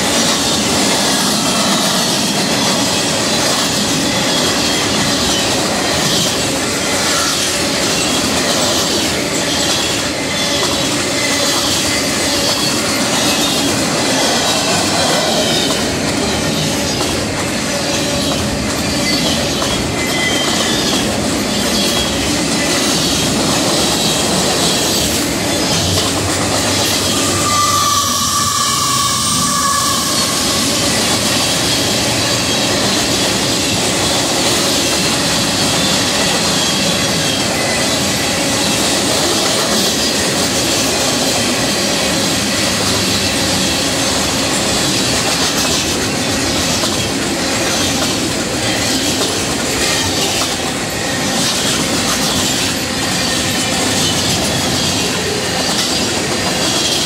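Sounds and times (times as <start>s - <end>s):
train wheels running on rails: 0.0s - 57.0s
high squeal: 17.7s - 22.2s, 24.0s - 32.8s.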